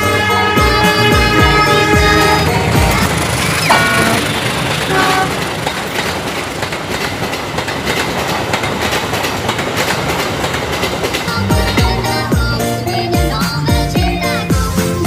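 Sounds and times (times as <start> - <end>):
train horn toots: 0.0 - 5.6
train wheels clattering on rails: 0.6 - 15.0.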